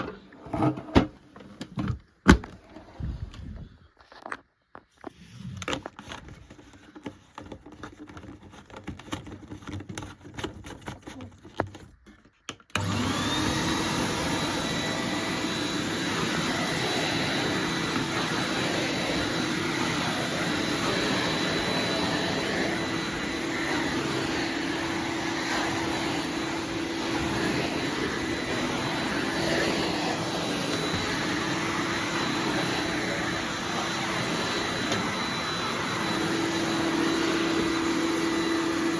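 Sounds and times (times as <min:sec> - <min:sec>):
vacuum cleaner motor whining: 0:12.7 - 0:38.9.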